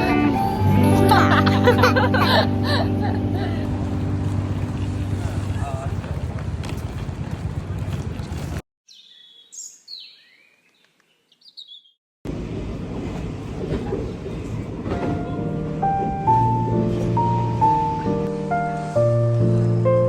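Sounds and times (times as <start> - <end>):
low rumbling noise: 0.2 - 8.6
music of held stepping notes: 14.9 - 20.0.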